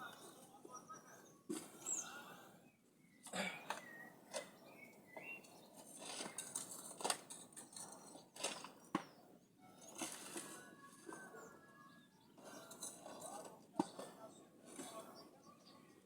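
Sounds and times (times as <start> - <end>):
faint bird chirps: 0.0 - 6.6, 8.8 - 13.1.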